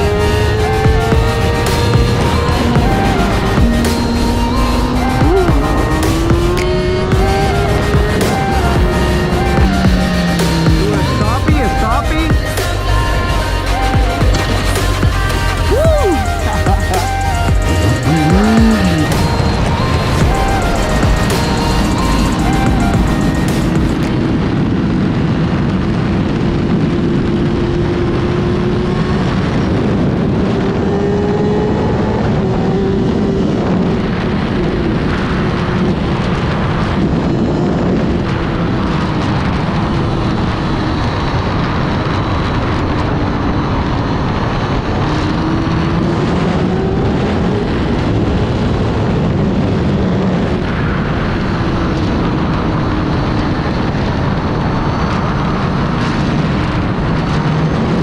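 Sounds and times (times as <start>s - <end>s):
motorcycle engine revving: 0.0s - 24.1s, 27.2s - 35.0s
wind on microphone: 13.4s - 58.0s.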